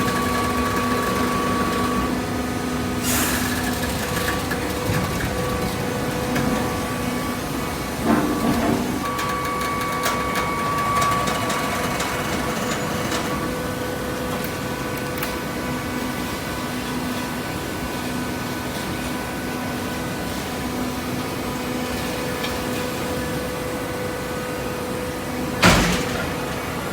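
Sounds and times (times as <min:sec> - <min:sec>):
baler machinery humming: 0:00.0 - 0:16.3.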